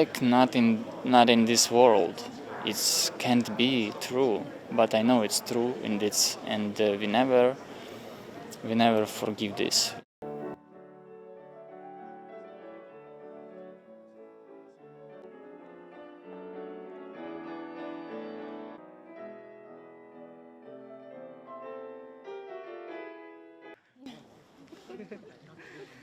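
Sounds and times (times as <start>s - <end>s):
quiet classical piano music: 10.2s - 23.8s.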